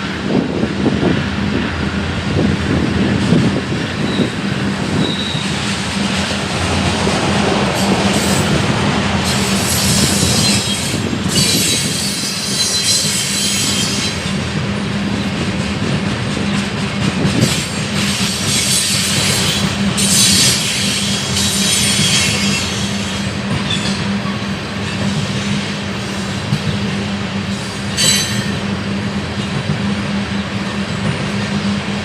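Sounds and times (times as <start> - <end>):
train cars rumbling on rails: 0.0 - 32.0
high-pitched wheel squeal: 5.0 - 5.5, 9.2 - 14.2.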